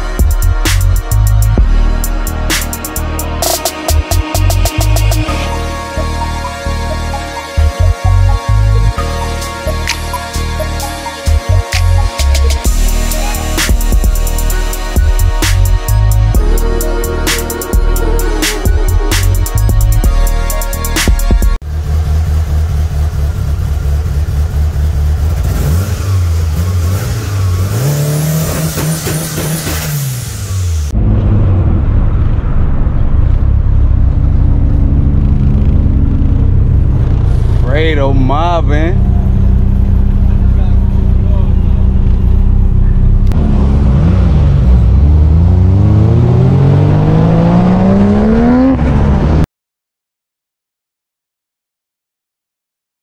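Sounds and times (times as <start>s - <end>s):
car engine running under load: 21.6s - 38.3s, 38.9s - 49.4s.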